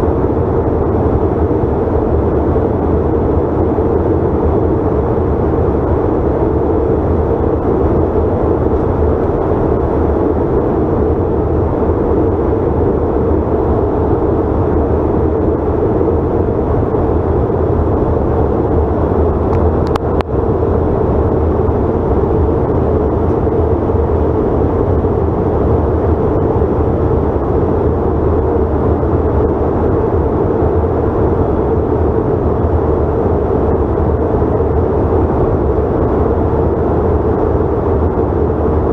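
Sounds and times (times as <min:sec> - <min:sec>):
jet engines humming: 0:00.0 - 0:38.9
rush of air in cabin: 0:00.0 - 0:38.9.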